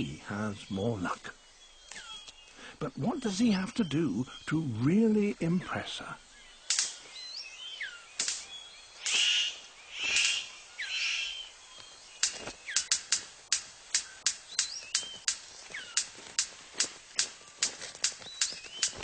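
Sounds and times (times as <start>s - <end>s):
sharp rhythmic bird clicks: 0.0s - 5.5s, 6.2s - 19.0s
harsh rasping bird calls: 0.0s - 19.0s.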